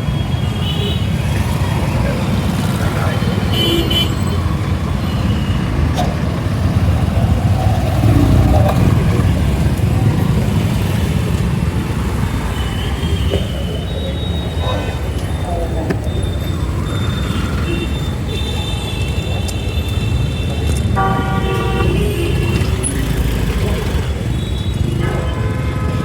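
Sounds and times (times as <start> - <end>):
road and wind noise: 0.0 - 26.0
vehicle horn toots: 17.4 - 22.9.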